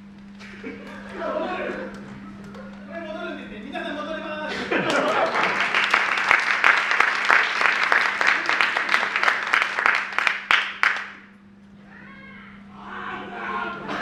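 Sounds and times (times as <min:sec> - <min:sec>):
steady low hum: 0:00.0 - 0:14.0
crowd applauding: 0:04.8 - 0:11.3.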